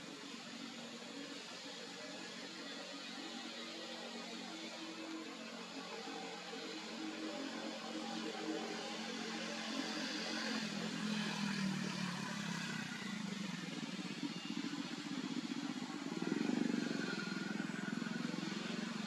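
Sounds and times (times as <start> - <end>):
passing vehicle engine: 9.2 - 19.0.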